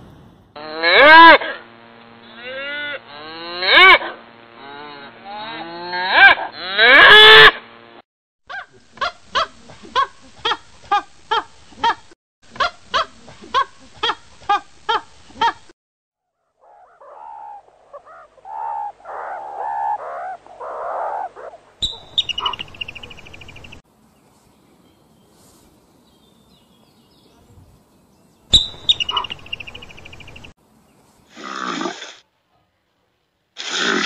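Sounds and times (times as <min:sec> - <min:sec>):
squeaky animal chirps: 0:16.8 - 0:23.8, 0:28.5 - 0:30.2
rapid trilling chirp: 0:21.8 - 0:23.8, 0:28.5 - 0:30.5.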